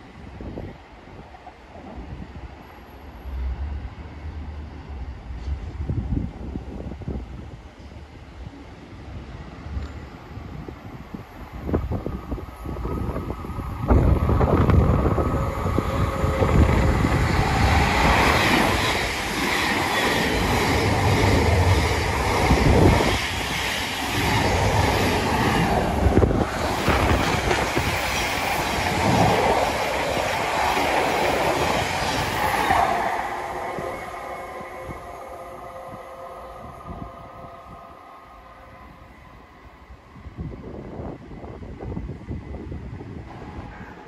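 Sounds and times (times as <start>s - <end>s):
train wheels clattering on rails: 16.1s - 33.1s.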